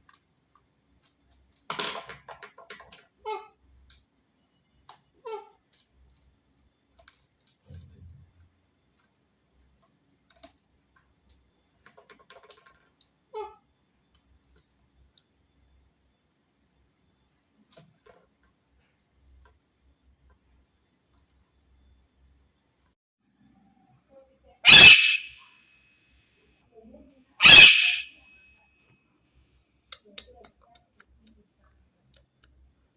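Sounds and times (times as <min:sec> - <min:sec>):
parrot screech: 0:24.6 - 0:25.4, 0:27.4 - 0:28.2
soft chirps: 0:24.6 - 0:25.4, 0:27.4 - 0:28.4.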